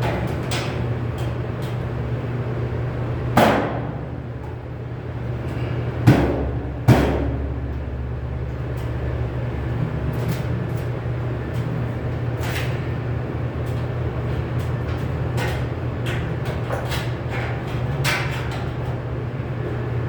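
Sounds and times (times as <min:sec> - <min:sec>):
steady low hum: 0:00.0 - 0:20.0
knocks on sheet metal: 0:03.4 - 0:04.0, 0:06.0 - 0:07.6.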